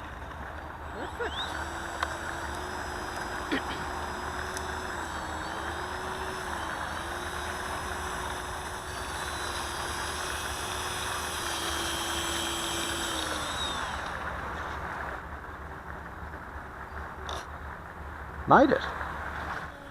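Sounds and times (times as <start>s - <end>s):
model aeroplane motor whine: 0.0s - 15.2s, 19.4s - 19.9s.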